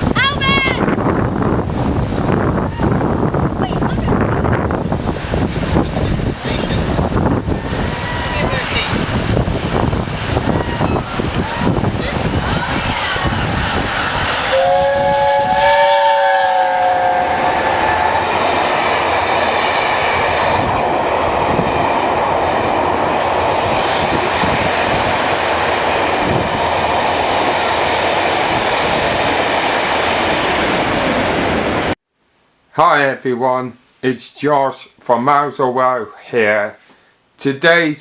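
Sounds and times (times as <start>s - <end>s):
train rushing past: 0.0s - 32.0s
train horn chord: 14.5s - 18.6s.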